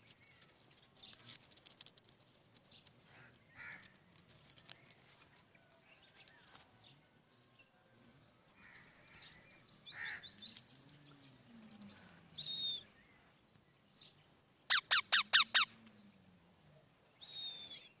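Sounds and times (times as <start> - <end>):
parakeets chirping: 14.7 - 15.7
shrill downward-sweeping calls: 14.7 - 15.7.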